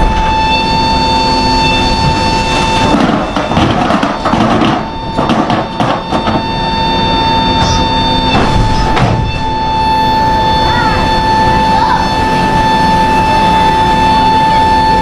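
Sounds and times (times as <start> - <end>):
aircraft drone with whine: 0.0 - 15.0
bursts of noise and knocks: 1.8 - 6.8, 7.4 - 9.4.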